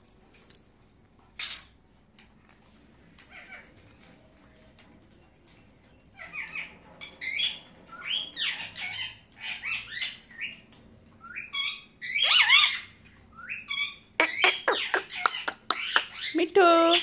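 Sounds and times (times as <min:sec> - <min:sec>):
parakeet squawking: 0:06.2 - 0:10.6, 0:11.3 - 0:17.0.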